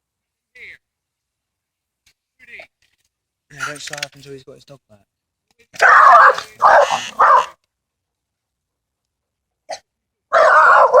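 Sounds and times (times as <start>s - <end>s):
dog barking: 5.8s - 7.6s, 9.7s - 11.0s.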